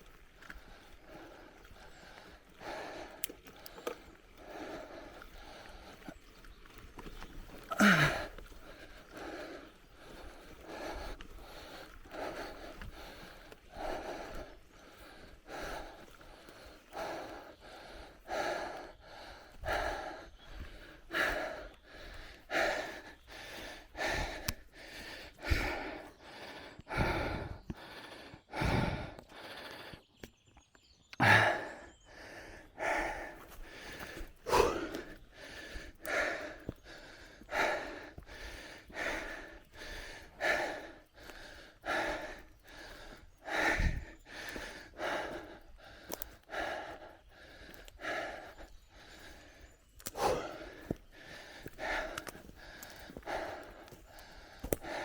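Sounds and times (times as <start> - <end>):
person breathing hard: 0.0 - 30.2, 31.2 - 55.0.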